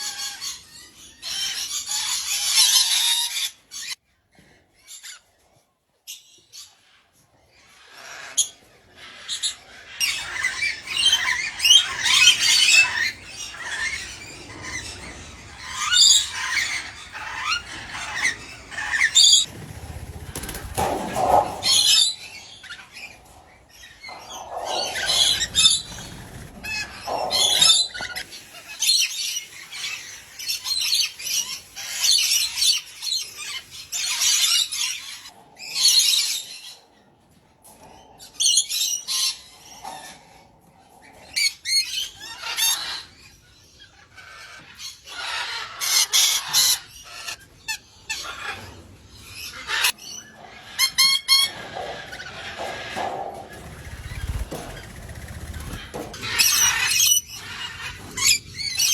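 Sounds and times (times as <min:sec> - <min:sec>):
pet birds squawking: 0:07.8 - 0:36.8, 0:41.0 - 0:58.9.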